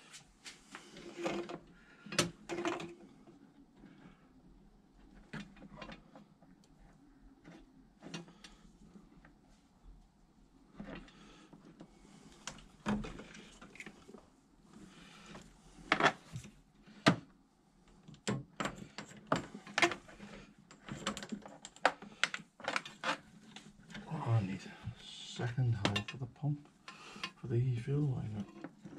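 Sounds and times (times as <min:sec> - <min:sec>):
knocks and clunks of tools: 0:25.8 - 0:26.2.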